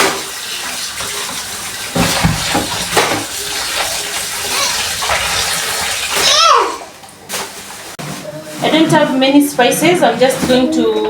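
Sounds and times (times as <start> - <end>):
water running from tap: 0.0 - 7.2.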